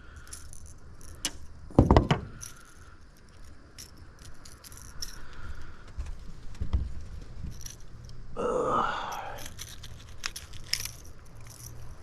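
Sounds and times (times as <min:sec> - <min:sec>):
fishing tackle clicks and rattles: 0:00.1 - 0:05.6, 0:09.1 - 0:12.0
loud knocks: 0:01.7 - 0:02.4.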